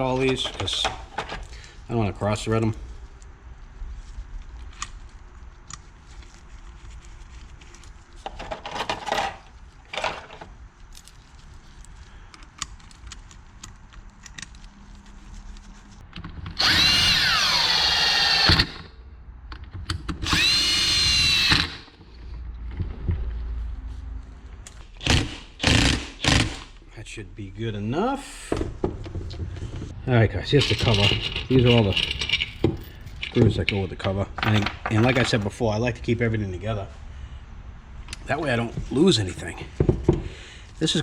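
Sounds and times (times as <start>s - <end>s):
electric drill whirring: 16.6s - 18.9s, 20.2s - 22.0s, 25.0s - 26.6s.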